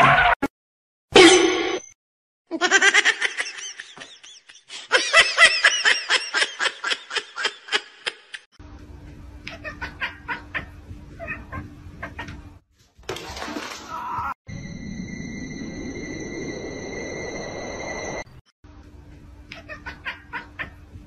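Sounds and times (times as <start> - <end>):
person laughing hard: 2.5 - 8.4
low hum: 14.5 - 19.4.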